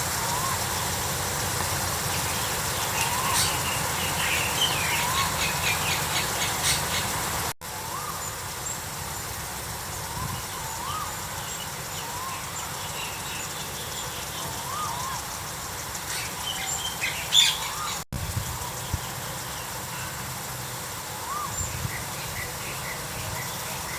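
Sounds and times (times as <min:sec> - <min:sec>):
sharp high bird chirps: 0:02.1 - 0:08.8.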